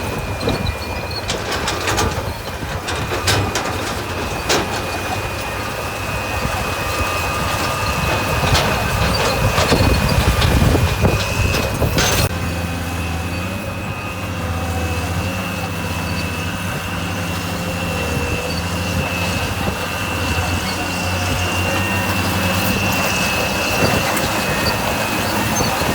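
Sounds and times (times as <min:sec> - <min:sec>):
clanks and rattles: 0:00.0 - 0:12.4, 0:18.0 - 0:25.9
diesel engine running: 0:00.0 - 0:25.9.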